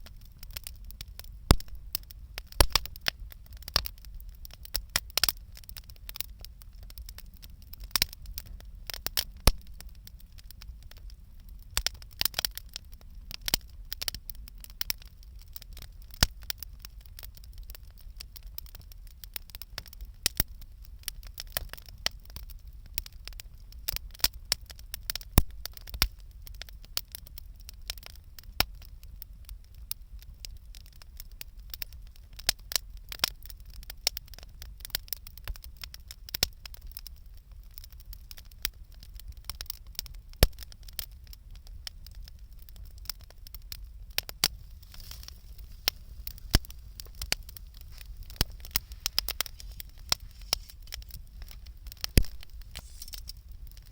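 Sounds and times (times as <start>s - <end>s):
low steady rumble: 0.0s - 3.6s, 43.9s - 53.9s
campfire crackling: 0.0s - 53.9s.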